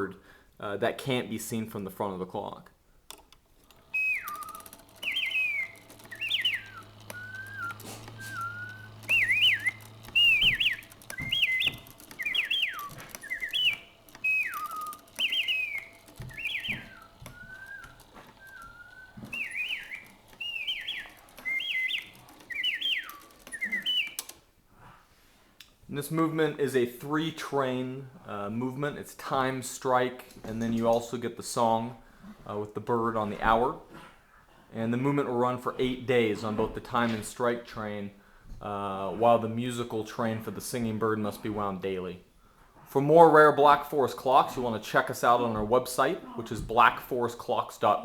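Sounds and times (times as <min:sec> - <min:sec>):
faint mechanical clicks: 0:02.6 - 0:24.6
bird clock whistle chirping: 0:03.8 - 0:24.3.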